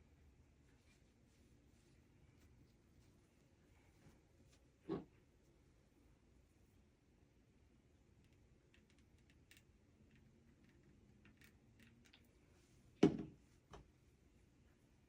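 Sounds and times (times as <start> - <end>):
objects knocking on work surface: 13.0 - 13.4.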